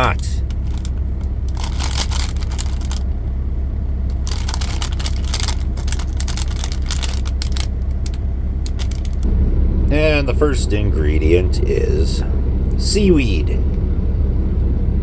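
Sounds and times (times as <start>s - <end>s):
plastic wrapper crinkling: 0.0s - 3.1s, 4.1s - 9.2s
idling vehicle engine hum: 0.0s - 15.0s.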